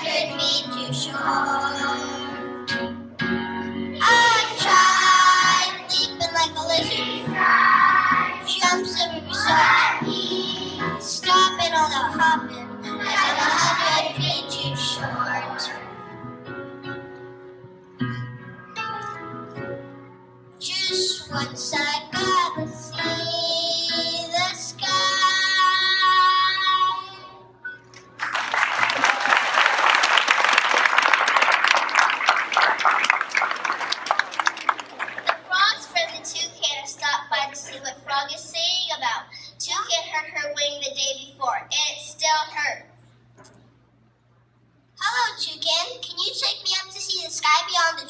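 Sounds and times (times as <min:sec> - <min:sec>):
child singing: 0:00.0 - 0:02.4, 0:04.0 - 0:15.8, 0:20.6 - 0:27.4.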